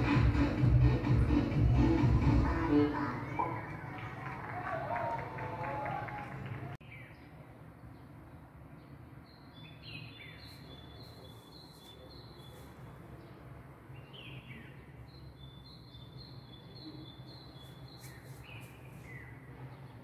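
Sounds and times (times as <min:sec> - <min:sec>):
birds chirping: 0:06.5 - 0:20.0.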